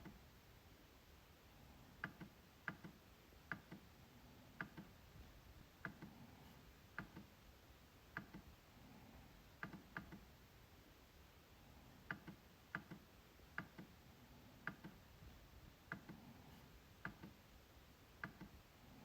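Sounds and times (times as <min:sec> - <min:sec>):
trackpad clicking: 0:12.1 - 0:13.0, 0:18.2 - 0:18.6.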